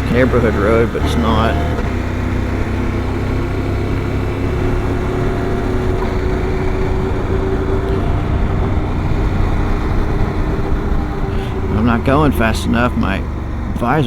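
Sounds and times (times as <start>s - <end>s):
motorcycle engine cruising: 0.0s - 14.0s
road and wind noise: 0.0s - 14.0s.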